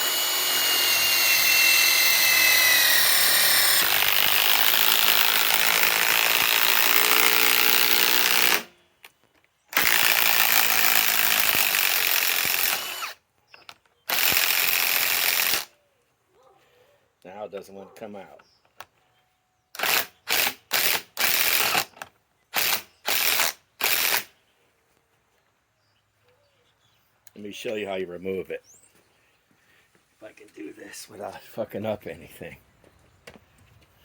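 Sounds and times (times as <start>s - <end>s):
impact wrench driving screw into wood: 0.0s - 8.7s, 9.7s - 13.2s, 14.1s - 15.7s, 19.8s - 24.3s.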